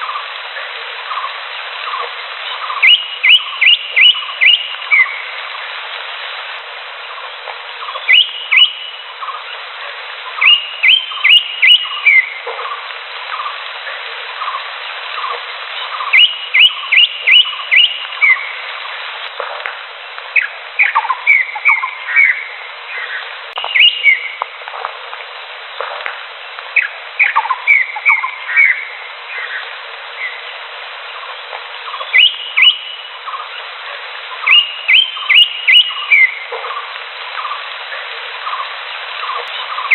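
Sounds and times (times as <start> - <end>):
background hiss: 0.0 - 39.9
bird singing whistled notes: 2.5 - 5.3, 7.8 - 9.4, 10.4 - 12.4, 15.8 - 18.6, 20.4 - 24.4, 26.8 - 29.6, 31.9 - 33.4, 34.4 - 36.4.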